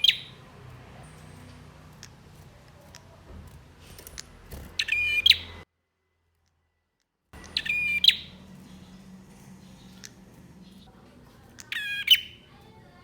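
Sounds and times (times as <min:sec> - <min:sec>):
faint bird chirps: 0:00.0 - 0:00.4, 0:04.2 - 0:05.6, 0:07.4 - 0:10.9, 0:11.6 - 0:12.7
bird singing trilled phrases: 0:00.0 - 0:02.3, 0:04.1 - 0:05.6, 0:07.4 - 0:10.9, 0:11.5 - 0:12.8.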